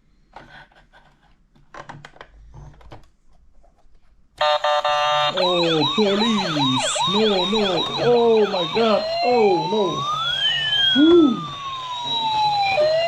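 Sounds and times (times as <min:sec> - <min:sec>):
toy police siren wailing: 0:04.4 - 0:13.0.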